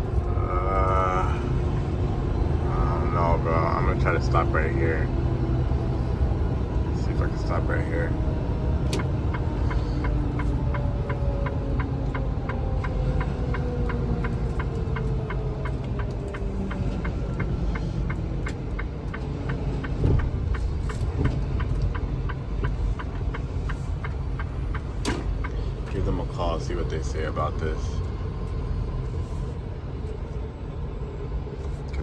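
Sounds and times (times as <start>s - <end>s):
diesel truck engine rumbling: 0.0s - 32.0s
steady light ticking: 9.0s - 26.2s.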